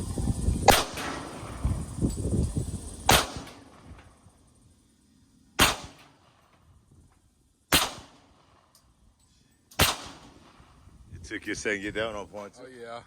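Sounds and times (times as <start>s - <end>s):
pistol shots: 0.6s - 1.6s, 3.1s - 3.9s, 5.6s - 6.4s, 7.7s - 8.6s, 9.8s - 10.7s.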